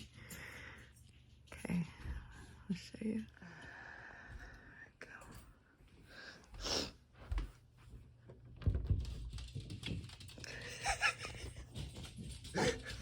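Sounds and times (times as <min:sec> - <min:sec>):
rustling and knocking: 0:08.2 - 0:13.0.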